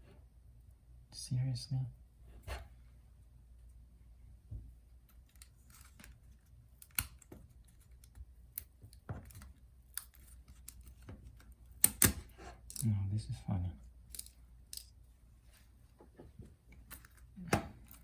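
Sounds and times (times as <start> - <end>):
plastic clicks and snaps: 6.8 - 12.9.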